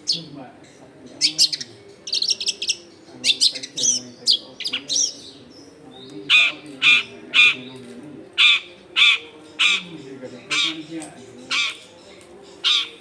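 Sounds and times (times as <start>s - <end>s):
shrike chattering song: 6.3s - 7.7s, 8.4s - 11.9s, 12.6s - 13.0s
shrike harsh calls: 6.3s - 7.7s, 8.4s - 9.9s, 10.5s - 10.9s, 11.5s - 11.9s, 12.6s - 13.0s.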